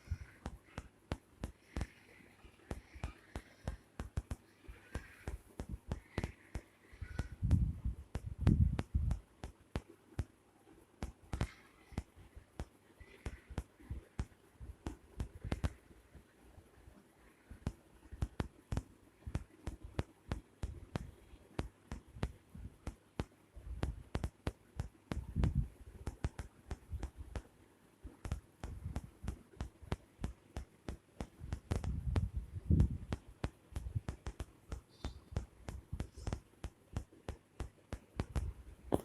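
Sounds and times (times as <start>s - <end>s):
soft taps and scuffling thumps: 17.5s - 39.0s.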